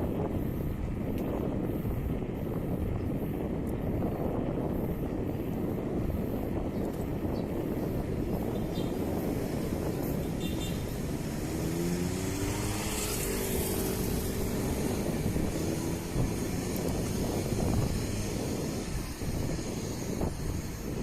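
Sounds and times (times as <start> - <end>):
wind rumble on microphone: 0.0 - 21.0
vehicle engine passing by: 9.7 - 18.8.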